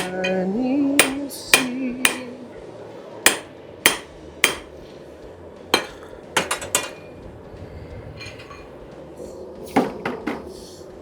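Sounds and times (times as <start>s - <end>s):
hammer striking steel on anvil: 0.0s - 2.4s, 3.2s - 4.8s, 5.7s - 7.2s.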